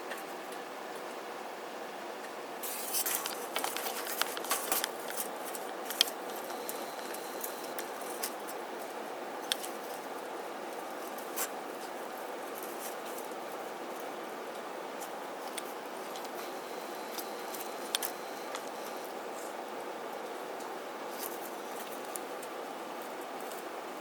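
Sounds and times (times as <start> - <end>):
background hiss: 2.4 - 24.0
birds pecking seed: 2.6 - 14.1.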